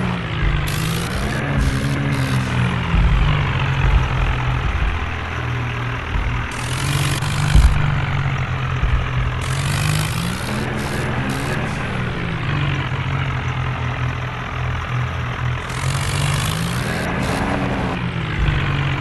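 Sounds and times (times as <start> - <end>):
tractor diesel engine running: 0.0 - 19.0
hiss: 9.4 - 12.0, 15.7 - 18.7.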